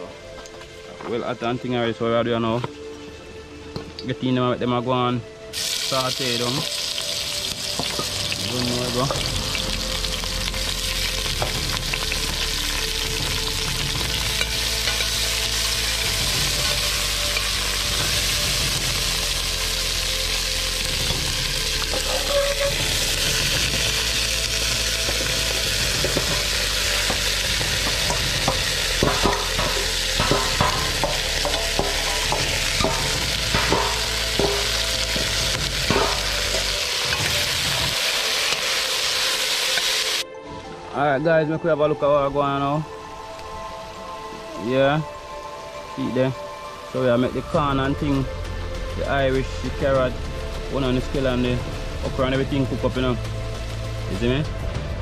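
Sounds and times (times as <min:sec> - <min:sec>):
vegetables sizzling in oil: 0:05.5 - 0:40.2
metal spoon scraping pot: 0:21.9 - 0:23.0.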